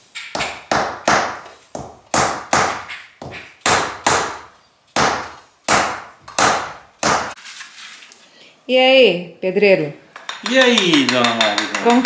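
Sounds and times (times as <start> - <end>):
bricks tapped into mortar: 10.2 - 12.0.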